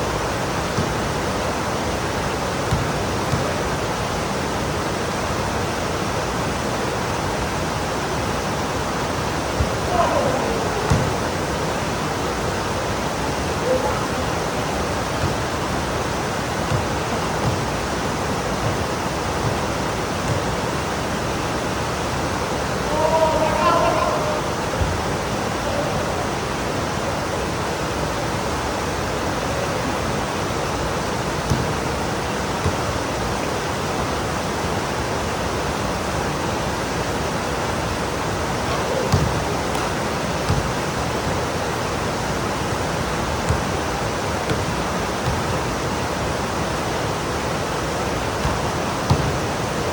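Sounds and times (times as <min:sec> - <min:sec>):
heavy rain pouring: 0:06.4 - 0:34.1
short low knocks: 0:09.5 - 0:12.0.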